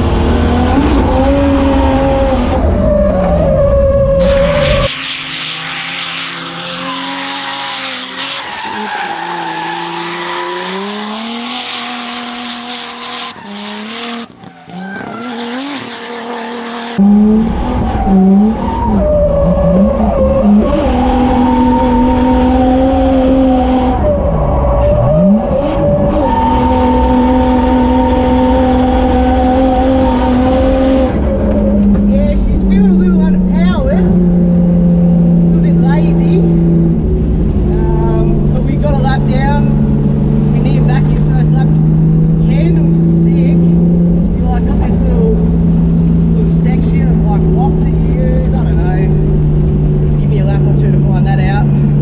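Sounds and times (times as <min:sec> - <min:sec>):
car engine revving: 0:00.0 - 0:52.0
tyres squealing and skidding: 0:01.2 - 0:33.9.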